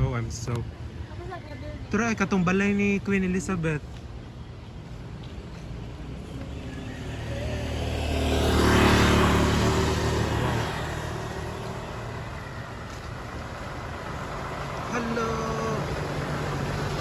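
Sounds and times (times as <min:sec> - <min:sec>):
vehicle passing by: 0:05.5 - 0:17.0.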